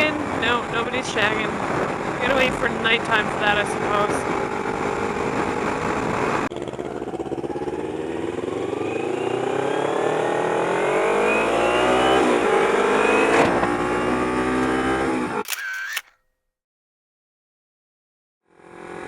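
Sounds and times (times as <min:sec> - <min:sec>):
riding wind noise: 0:00.0 - 0:09.4
motorcycle engine accelerating: 0:00.0 - 0:15.4, 0:18.5 - 0:19.0.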